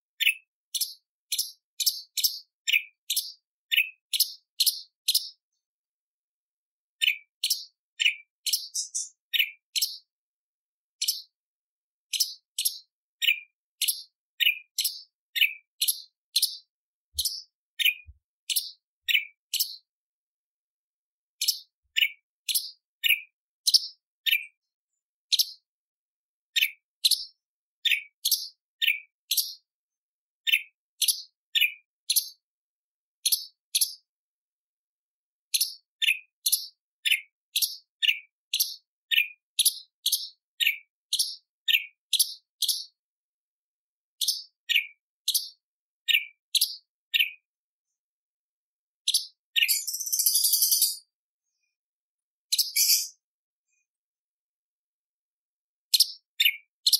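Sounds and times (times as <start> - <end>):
bird calling with sharp notes: 8.0 - 9.9, 49.6 - 51.1, 52.5 - 53.2.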